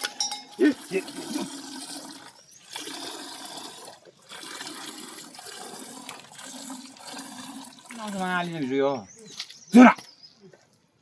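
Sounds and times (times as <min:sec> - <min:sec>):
water pouring and splashing: 0:00.0 - 0:09.9.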